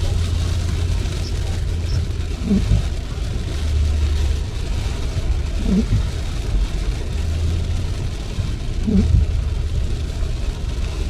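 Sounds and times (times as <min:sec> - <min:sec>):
rain hiss: 0:00.0 - 0:11.0
road and tyre rumble: 0:00.0 - 0:11.0
windshield wipers squeaking: 0:00.2 - 0:04.2, 0:05.4 - 0:06.5, 0:08.8 - 0:09.4.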